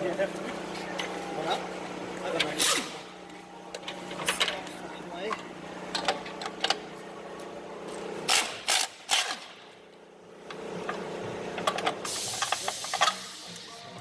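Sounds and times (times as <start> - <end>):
steady hum: 0.0 - 14.0
hiss: 12.0 - 14.0.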